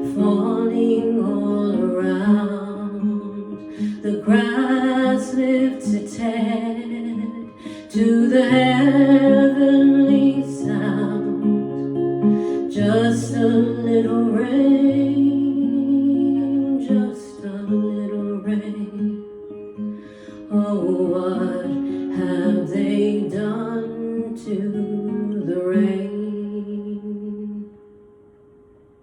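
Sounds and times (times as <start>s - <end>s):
woman singing long held notes: 0.0s - 11.7s, 12.4s - 19.2s, 20.4s - 27.8s
acoustic guitar strummed and plucked: 0.0s - 28.8s.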